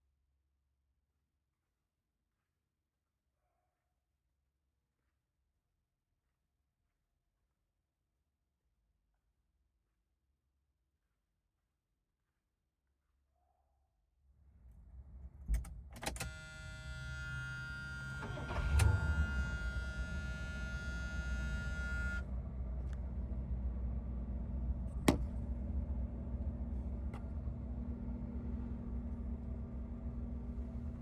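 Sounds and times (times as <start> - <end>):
car engine starting and idling: 14.5 - 31.0
warning buzzer: 16.3 - 22.2.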